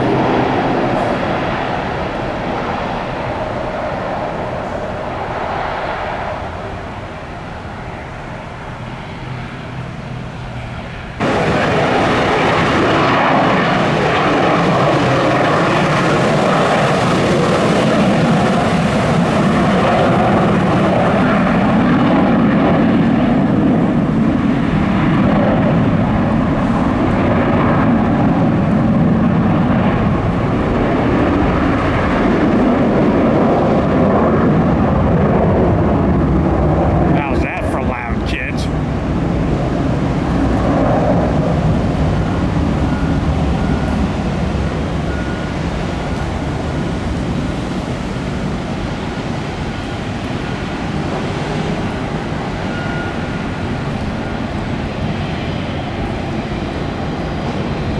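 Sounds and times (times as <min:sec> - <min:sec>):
jet engine noise: 0:00.0 - 0:57.9.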